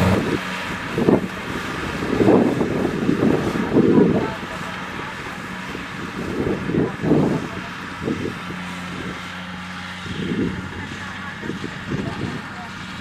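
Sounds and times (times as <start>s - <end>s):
combine harvester diesel engine running: 0.0s - 0.4s.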